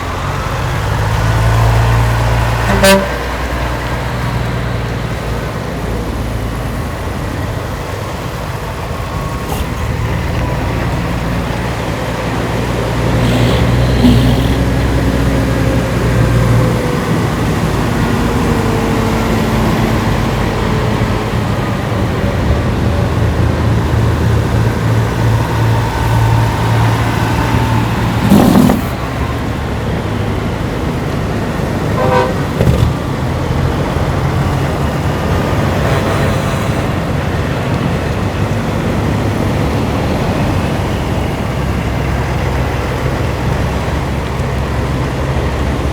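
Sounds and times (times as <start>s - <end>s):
truck horns honking: 0.0s - 4.6s, 9.5s - 20.2s, 22.5s - 37.6s
truck diesel engines running: 0.0s - 45.9s.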